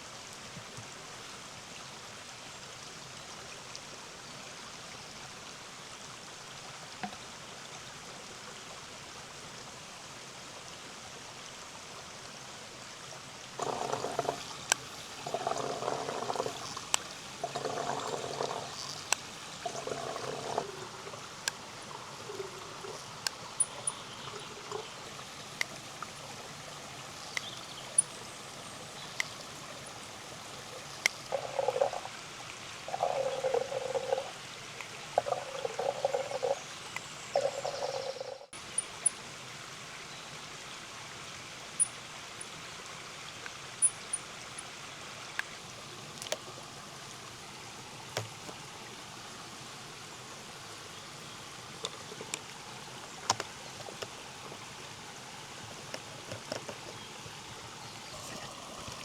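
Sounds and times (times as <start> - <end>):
stream running: 0.0 - 59.0
water gurgling and pouring: 13.6 - 28.3, 29.0 - 34.5, 35.1 - 36.7, 37.3 - 38.5, 58.1 - 59.0.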